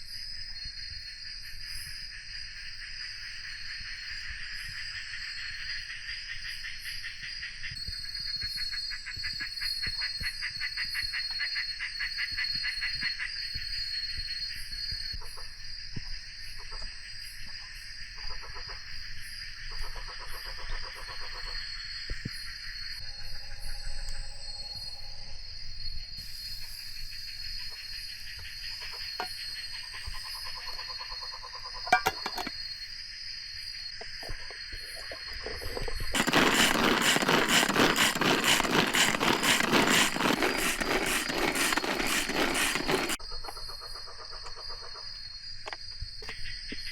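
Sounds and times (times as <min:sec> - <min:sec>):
insects trilling and chirping: 0:00.0 - 0:46.9
rushing noise with rhythmic pulse: 0:36.1 - 0:43.2.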